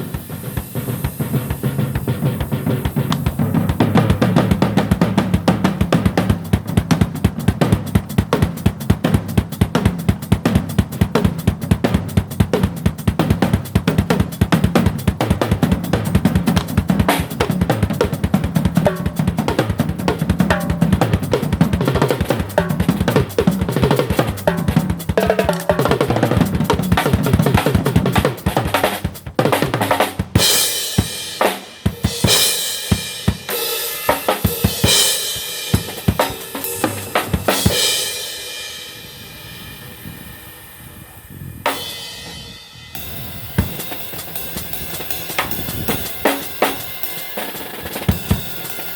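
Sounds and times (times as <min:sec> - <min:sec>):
cymbal crashes: 0:00.0 - 0:05.4, 0:30.4 - 0:48.9
drum kit groove: 0:00.0 - 0:48.9.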